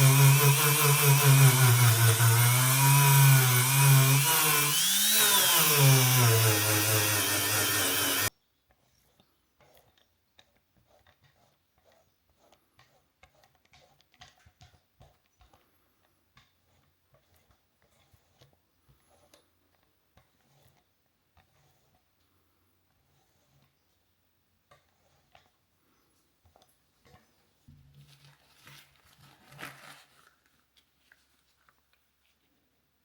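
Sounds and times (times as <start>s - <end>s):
power tool motor running: 0.0s - 8.3s.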